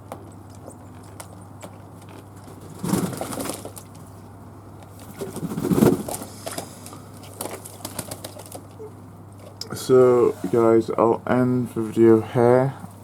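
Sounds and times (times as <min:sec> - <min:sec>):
doves cooing: 0:05.0 - 0:10.6.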